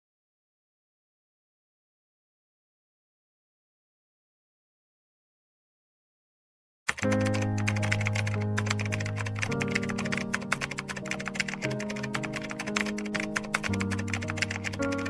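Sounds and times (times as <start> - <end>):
fast ticking percussion: 6.9 - 15.0.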